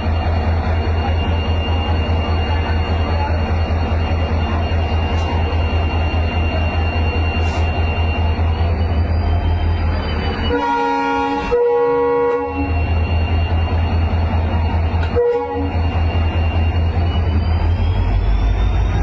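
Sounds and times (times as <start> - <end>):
diesel locomotive engine humming: 0.0 - 19.0
locomotive horn: 10.5 - 12.9, 15.0 - 15.9.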